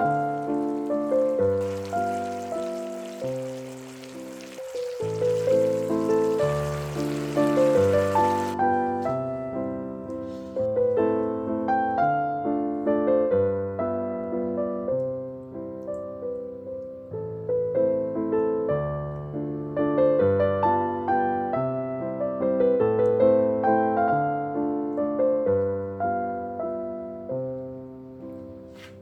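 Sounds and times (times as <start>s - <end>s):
gentle piano music: 0.0s - 29.0s.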